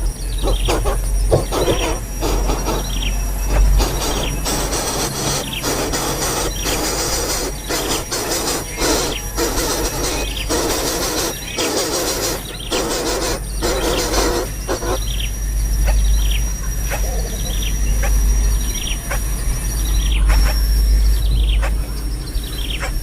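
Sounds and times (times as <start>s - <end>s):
rough hissing noise: 0.0s - 21.3s
small bird chirping: 0.0s - 23.0s.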